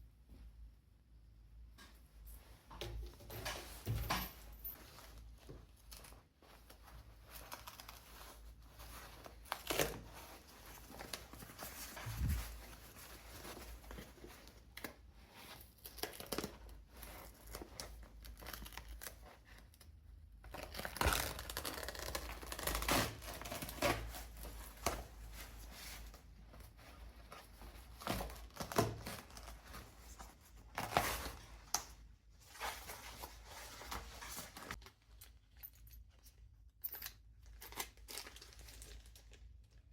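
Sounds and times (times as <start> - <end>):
leather bag rustling: 3.3 - 14.6.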